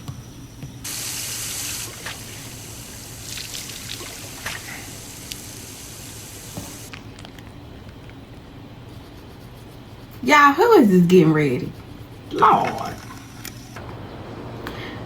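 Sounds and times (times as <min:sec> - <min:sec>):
running water pouring: 0:00.9 - 0:06.9.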